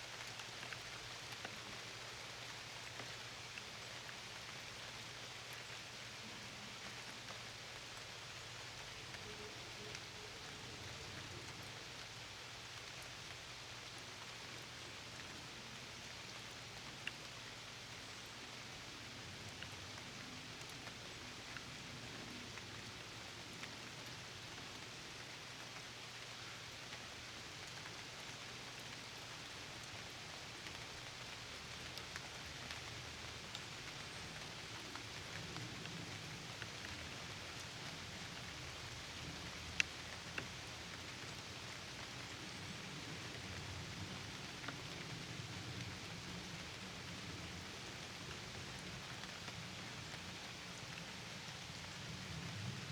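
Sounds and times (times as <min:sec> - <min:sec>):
steady rain falling: 0:00.0 - 0:52.9
raindrop ticks: 0:29.8 - 0:42.6.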